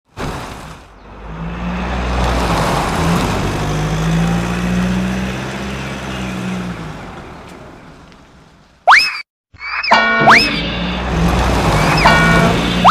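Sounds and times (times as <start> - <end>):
truck engine driving past: 0.4 - 8.0, 10.3 - 12.9.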